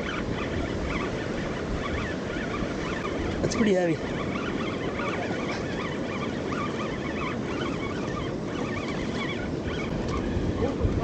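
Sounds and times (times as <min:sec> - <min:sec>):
high chirping calls: 0:00.0 - 0:10.8
ocean surf: 0:00.0 - 0:11.0
wind: 0:00.0 - 0:11.0.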